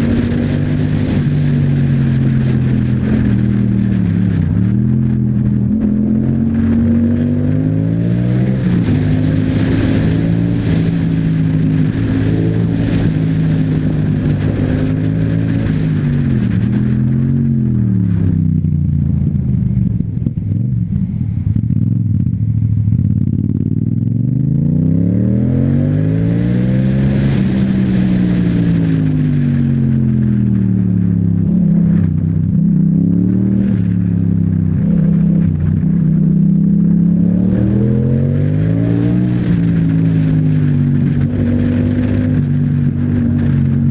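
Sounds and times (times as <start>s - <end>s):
motorcycle engine revving: 0.0s - 43.9s
wind rushing over microphone: 0.0s - 43.9s.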